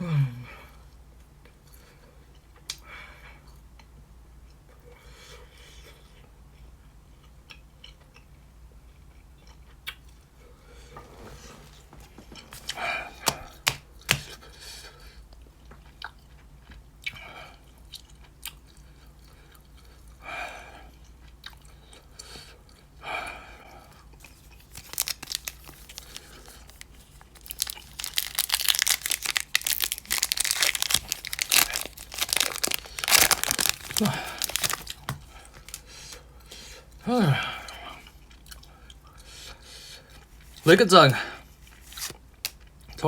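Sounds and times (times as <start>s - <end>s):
foil wrapper crinkling: 12.5s - 14.3s, 24.3s - 35.9s.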